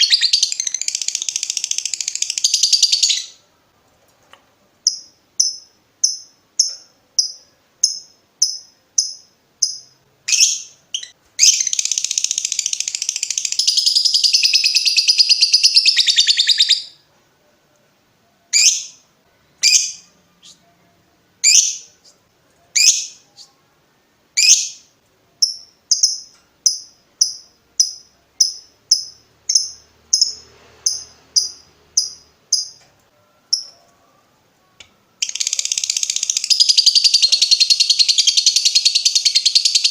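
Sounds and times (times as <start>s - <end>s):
lovebird chirping: 0.0s - 3.5s, 4.8s - 17.0s, 18.4s - 23.7s, 24.3s - 39.9s
lovebird chattering trill: 35.2s - 39.9s.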